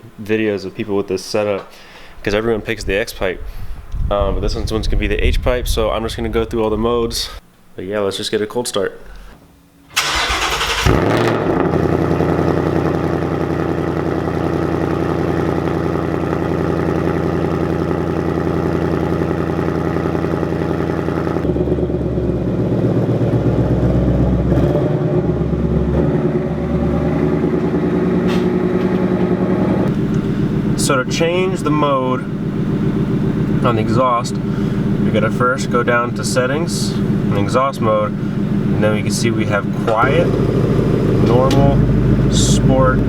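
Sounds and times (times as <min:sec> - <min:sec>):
starter motor cranking: 0:09.9 - 0:11.5
car engine idling: 0:09.9 - 0:43.0.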